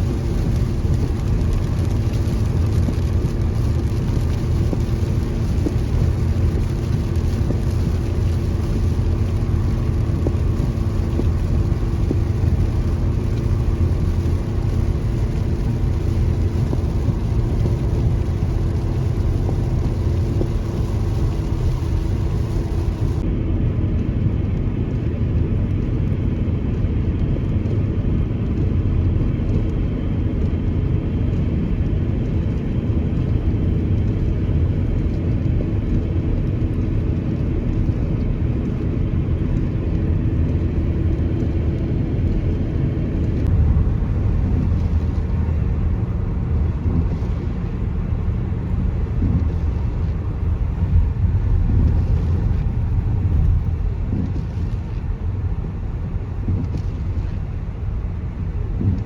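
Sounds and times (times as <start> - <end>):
car engine and tyre noise: 0.0 - 59.0.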